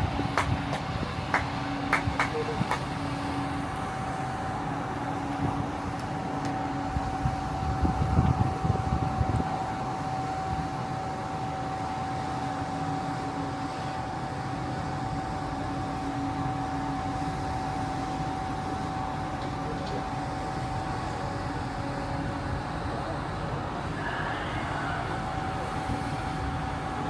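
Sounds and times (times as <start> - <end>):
constant mid-pitched tone: 0.0 - 8.0
ship engines humming: 0.0 - 27.0.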